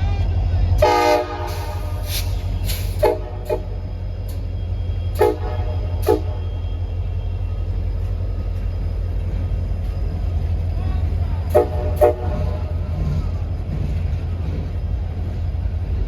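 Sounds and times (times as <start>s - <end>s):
locomotive horn toots: 0.8s - 7.8s, 11.4s - 13.1s.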